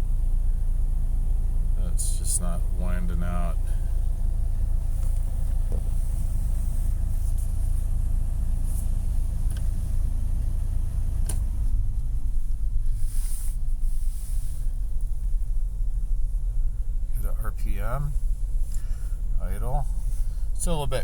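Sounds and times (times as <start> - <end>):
car engine idling: 0.0 - 21.0
faint click: 9.5 - 9.7.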